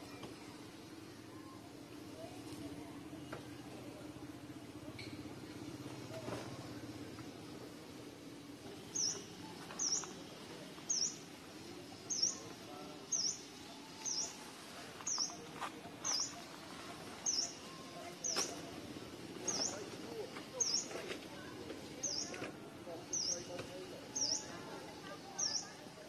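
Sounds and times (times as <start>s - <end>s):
faint outdoor background noise: 0.0s - 26.0s
bird chirping: 8.9s - 10.2s, 17.2s - 18.6s, 23.1s - 23.5s.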